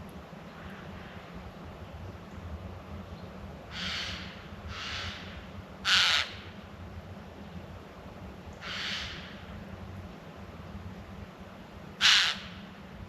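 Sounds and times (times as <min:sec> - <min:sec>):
harsh hissing bird screeches: 0:03.7 - 0:05.3, 0:08.6 - 0:09.2.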